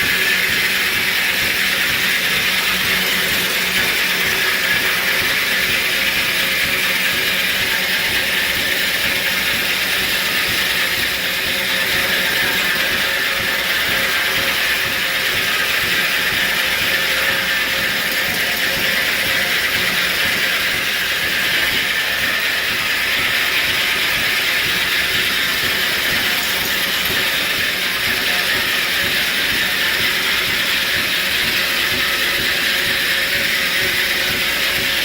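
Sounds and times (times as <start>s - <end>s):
sawmill machinery running: 0.0s - 35.0s.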